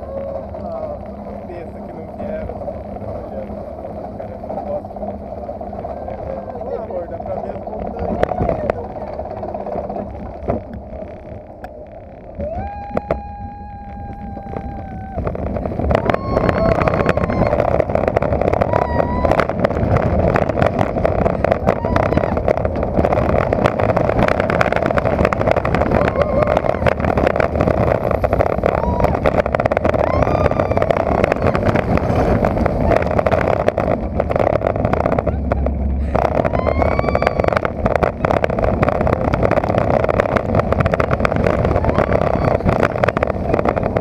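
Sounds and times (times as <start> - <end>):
roller coaster rattling on track: 0.0 - 44.0
wind blasting microphone: 0.0 - 44.0
riders yelling: 25.7 - 27.2
rider crying out: 25.7 - 27.3.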